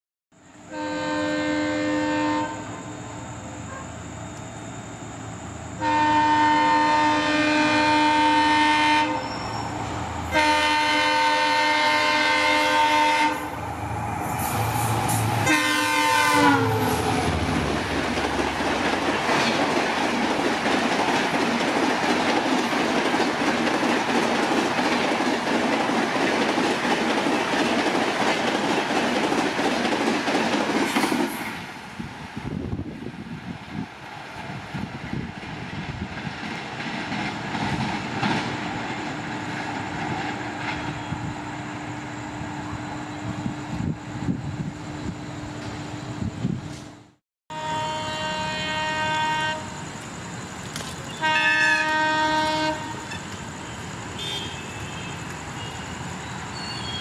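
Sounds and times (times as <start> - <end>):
train coaches rolling roar: 0.4 - 57.0
locomotive horn blasts: 0.7 - 2.8, 5.8 - 9.5, 10.3 - 13.6, 15.4 - 17.1, 47.5 - 49.8, 51.1 - 53.2, 54.2 - 56.0
wheel clatter over rail joints: 50.6 - 51.2.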